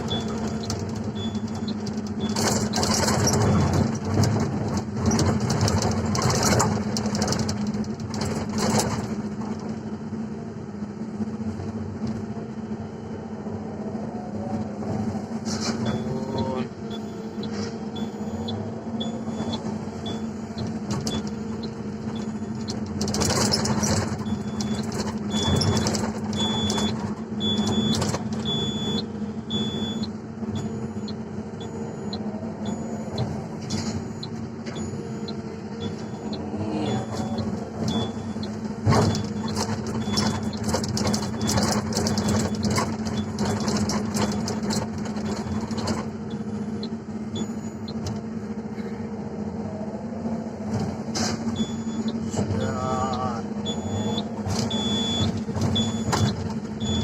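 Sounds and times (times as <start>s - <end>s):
excavator diesel engine: 0.0s - 57.0s
short high beeps: 15.8s - 20.3s, 26.4s - 38.6s.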